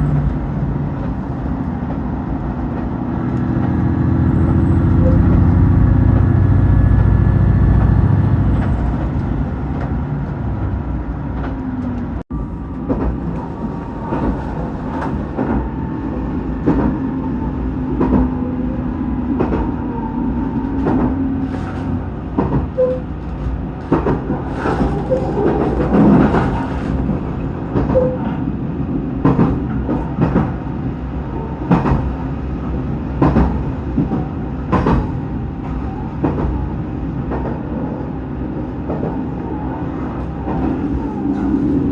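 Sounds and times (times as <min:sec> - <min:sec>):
diesel train engine: 0:00.0 - 0:41.9.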